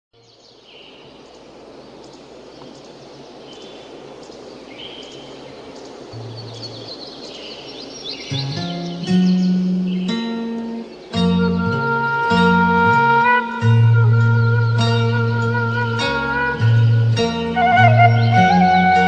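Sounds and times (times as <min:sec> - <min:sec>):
birds chirping and trilling: 0:00.2 - 0:19.0
steady hiss: 0:00.2 - 0:19.0
plucked-string music: 0:08.3 - 0:19.0.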